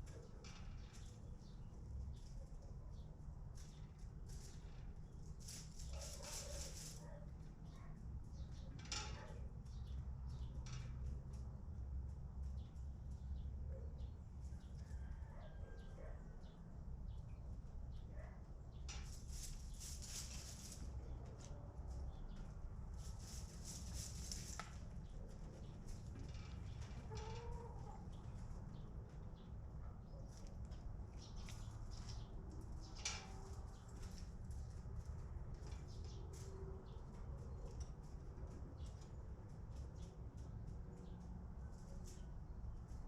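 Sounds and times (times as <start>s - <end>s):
chickens scratching in litter: 3.2s - 7.6s, 18.9s - 28.7s, 30.2s - 43.0s
scratchy rustling: 5.4s - 7.2s, 19.0s - 21.2s, 22.9s - 24.8s
chickens calling softly: 19.1s - 34.2s.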